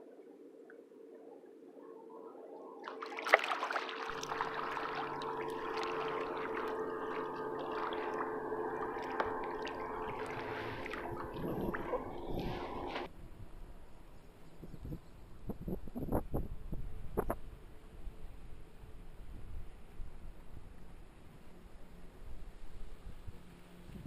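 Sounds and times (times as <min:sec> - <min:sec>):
water splashing against kayak hull: 0:02.8 - 0:13.1.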